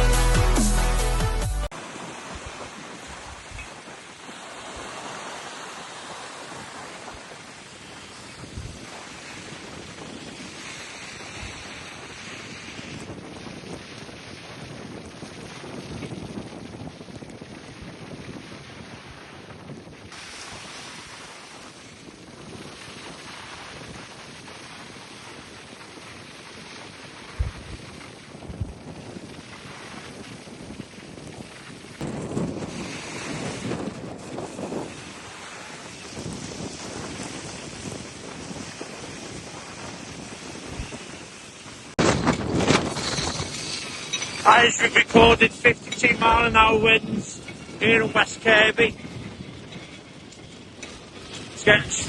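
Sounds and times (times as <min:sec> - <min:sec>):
strong wind on microphone: 0:01.8 - 0:52.0.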